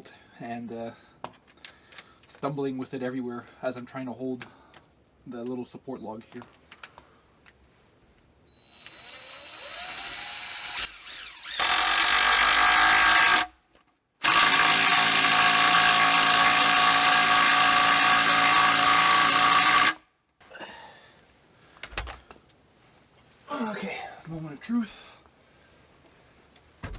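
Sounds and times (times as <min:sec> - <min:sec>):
power drill boring into log: 0:08.5 - 0:13.5, 0:14.2 - 0:20.0.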